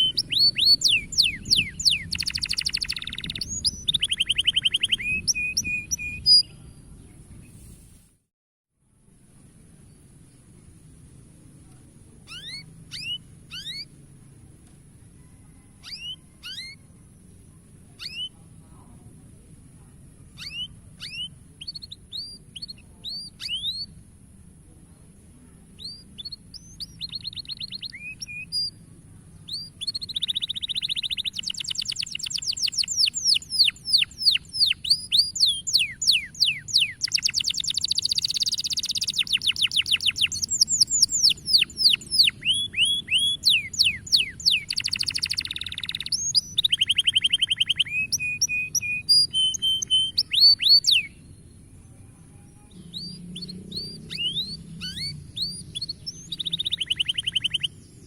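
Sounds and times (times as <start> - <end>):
canary singing: 0.0 - 6.6, 12.3 - 14.0, 15.4 - 17.4, 18.0 - 18.4, 20.3 - 24.0, 25.8 - 28.8, 29.4 - 51.6, 52.6 - 57.9.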